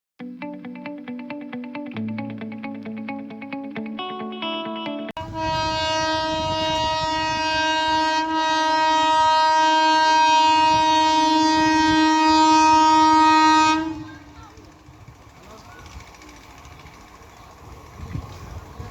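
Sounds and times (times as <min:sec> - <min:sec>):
train horn: 0:05.2 - 0:14.7
train rumbling: 0:05.2 - 0:18.9.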